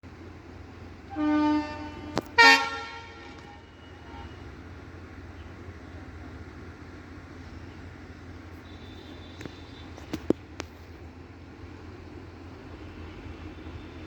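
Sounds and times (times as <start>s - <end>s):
locomotive horn blast: 1.0s - 4.7s.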